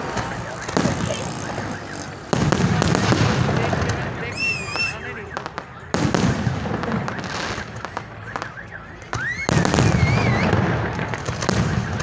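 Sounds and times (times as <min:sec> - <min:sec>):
rising firework whistle: 0:00.0 - 0:03.4, 0:04.2 - 0:05.4, 0:08.3 - 0:10.7
fireworks crackling and popping: 0:00.0 - 0:12.0.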